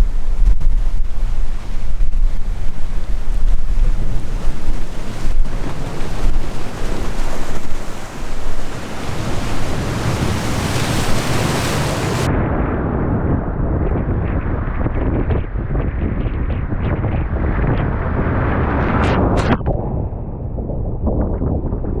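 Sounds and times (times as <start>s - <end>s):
sea waves washing in: 0.0s - 12.3s
wind buffeting microphone: 0.0s - 22.0s.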